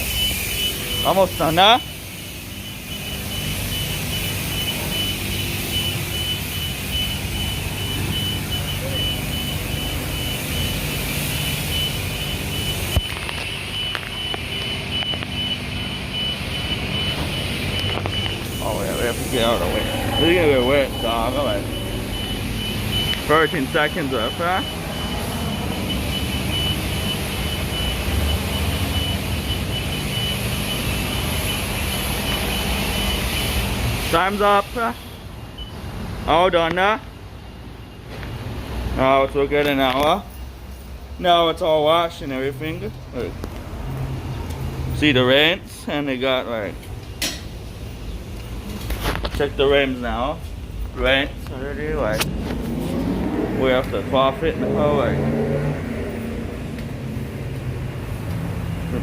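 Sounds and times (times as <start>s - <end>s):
short high electronic beep: 0.0s - 34.3s
pressure washer spraying: 0.0s - 35.1s
low machine rumble: 14.2s - 28.2s
pressure wand spraying: 17.5s - 24.0s.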